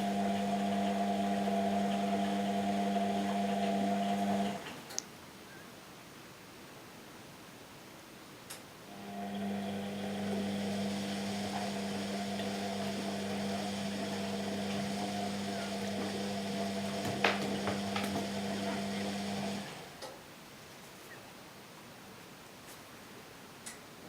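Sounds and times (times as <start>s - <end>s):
washing machine humming: 0.0s - 4.9s, 8.9s - 20.0s.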